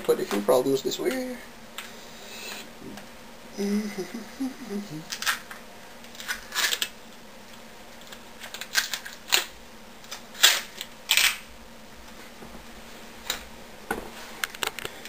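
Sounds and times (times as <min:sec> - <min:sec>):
small objects clicking and knocking: 0:05.1 - 0:07.0, 0:08.0 - 0:11.4.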